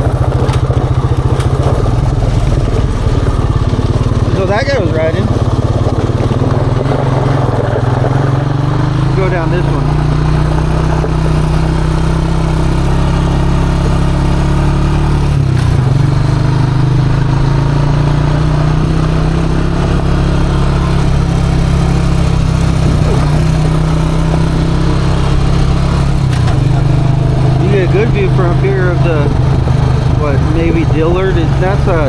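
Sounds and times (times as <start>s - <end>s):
atv engine running: 0.0s - 32.0s.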